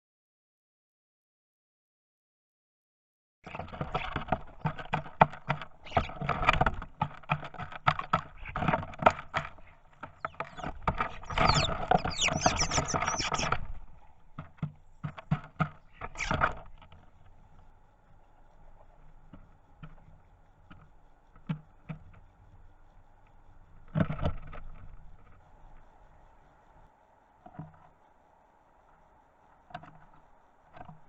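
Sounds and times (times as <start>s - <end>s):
birds pecking at feeder: 3.5s - 17.6s
high squeaky bird notes: 10.2s - 13.5s.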